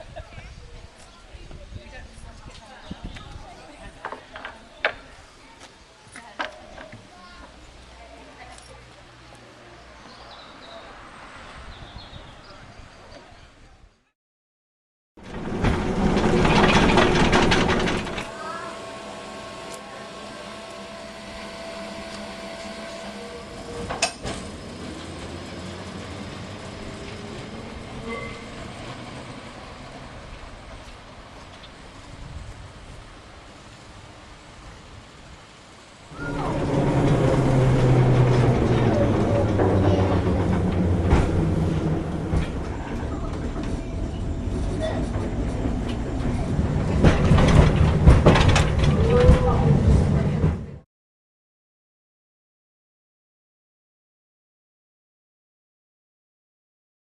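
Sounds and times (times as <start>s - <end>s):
wheel clicks over rail joints: 15.2s - 18.3s, 23.7s - 25.6s, 36.1s - 50.7s
electric tram rumbling on track: 15.2s - 50.8s
tram whine: 15.2s - 50.8s.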